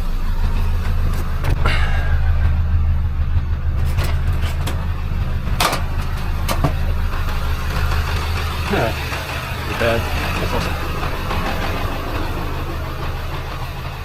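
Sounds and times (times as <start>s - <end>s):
vehicle engine rumbling: 0.0s - 14.0s
short knocks and rattles: 3.8s - 8.5s.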